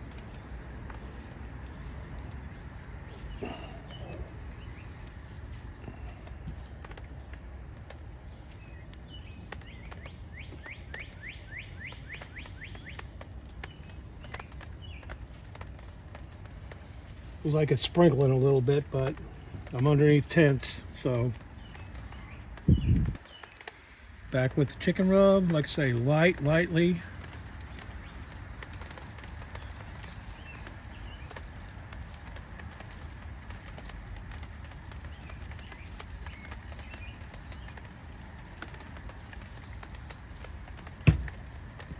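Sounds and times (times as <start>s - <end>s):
steady low rumble: 0.0s - 9.0s
fine scattered ticks: 0.0s - 41.9s
low outdoor rumble: 0.0s - 41.9s.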